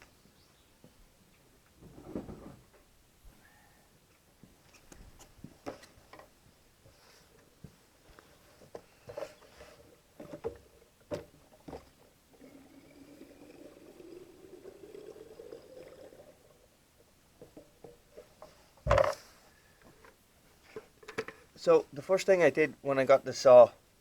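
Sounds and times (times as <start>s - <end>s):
fuel pouring into tank: 11.4s - 16.7s.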